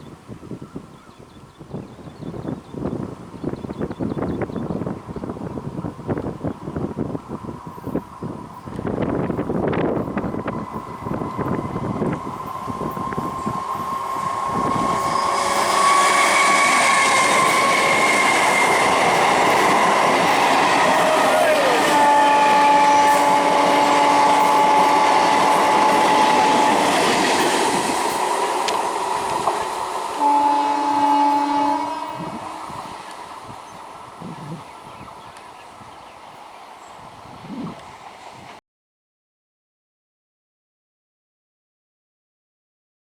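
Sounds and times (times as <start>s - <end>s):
electric train passing: 2.4s - 38.6s
train horn blast: 12.6s - 27.7s, 29.8s - 32.9s.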